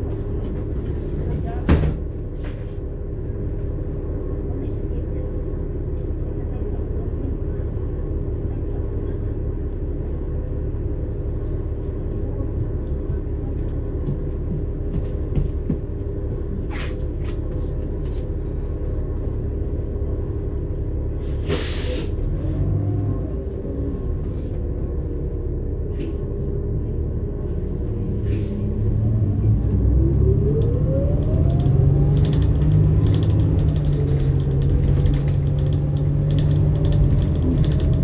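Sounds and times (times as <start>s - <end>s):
bus engine rumbling: 0.0s - 38.0s
air hiss: 21.5s - 22.1s.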